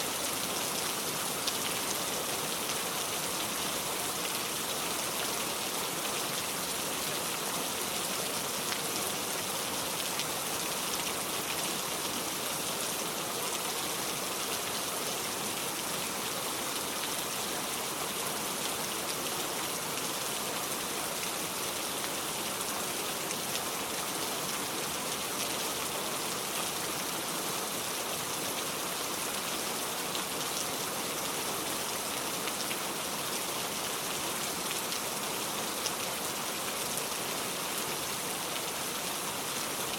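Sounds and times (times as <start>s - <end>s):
steady rain hiss: 0.0s - 39.9s
faint rain ticks: 1.4s - 2.0s.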